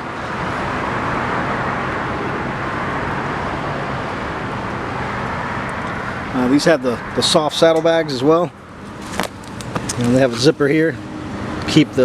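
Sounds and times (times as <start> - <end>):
road traffic rushing: 0.0 - 12.0.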